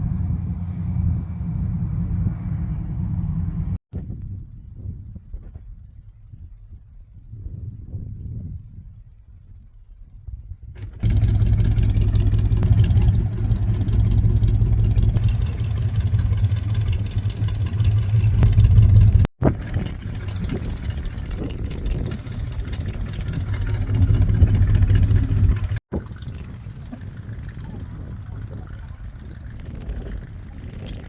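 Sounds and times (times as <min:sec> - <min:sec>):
car engines rumbling: 0:00.0 - 0:03.8, 0:11.0 - 0:31.0.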